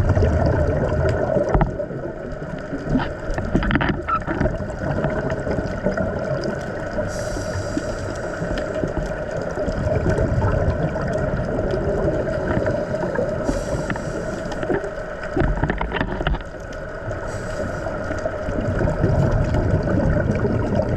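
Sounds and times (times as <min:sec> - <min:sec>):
churning water: 0:00.0 - 0:20.9
boat engine humming: 0:06.6 - 0:09.8, 0:10.8 - 0:19.6
bursts of hiss: 0:07.1 - 0:08.6.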